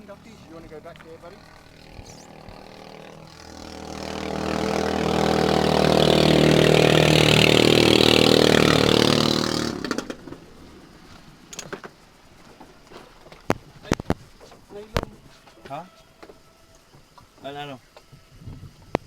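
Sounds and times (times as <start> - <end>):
boat engine revving: 0.0 - 11.6.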